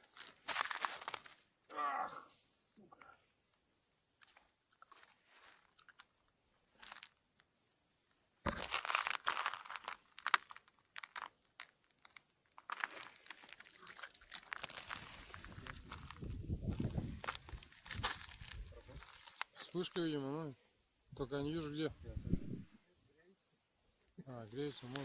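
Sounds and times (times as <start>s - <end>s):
crunching: 0.0s - 1.5s, 4.2s - 7.5s, 8.4s - 19.8s.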